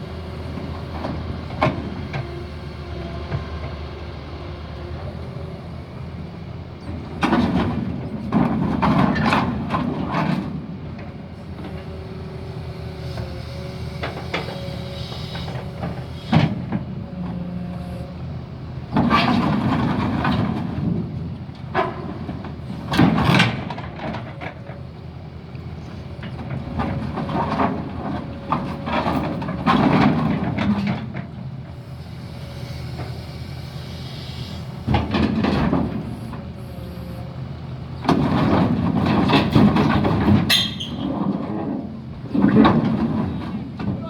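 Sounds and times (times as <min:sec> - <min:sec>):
diesel excavator engine under load: 0:00.0 - 0:44.0
steel screeching on steel: 0:40.5 - 0:41.1.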